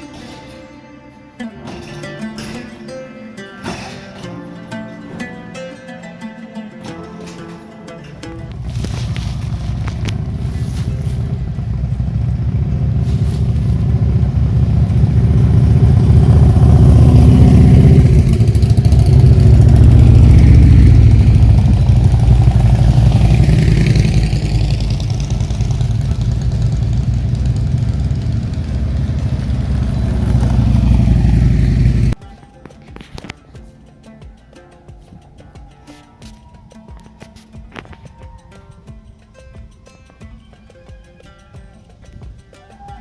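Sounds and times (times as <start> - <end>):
vehicle engine rumbling: 8.2 - 32.2.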